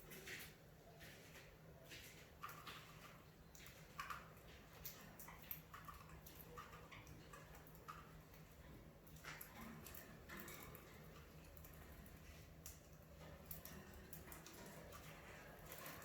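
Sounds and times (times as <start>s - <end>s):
budgerigars chirping and clicking: 2.0s - 16.0s.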